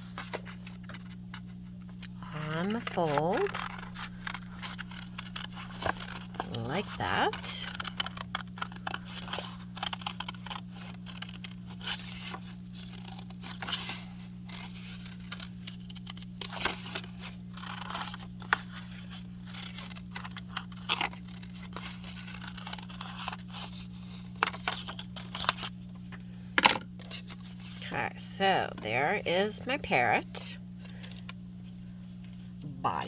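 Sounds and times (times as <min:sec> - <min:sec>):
paper rustling: 0:00.0 - 0:28.0
scissors snipping paper: 0:02.2 - 0:25.7.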